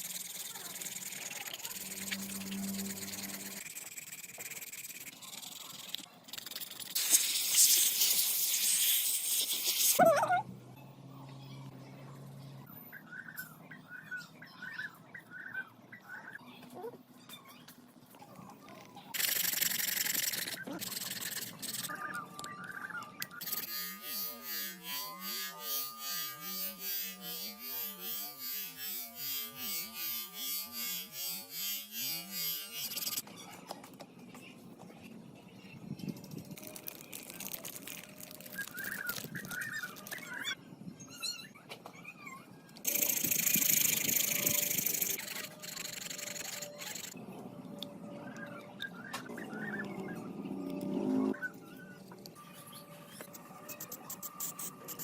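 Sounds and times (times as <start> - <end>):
small electric tool buzzing: 0.0 - 6.0, 23.4 - 33.2, 42.9 - 47.2.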